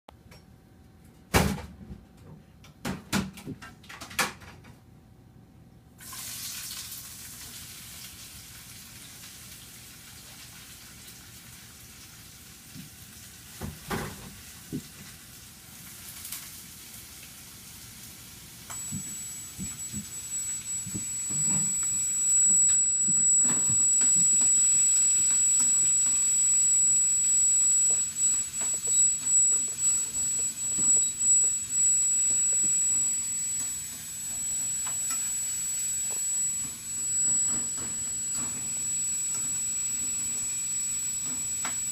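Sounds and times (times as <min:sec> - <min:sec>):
high-pitched gimbal whine: 0:18.7 - 0:41.9.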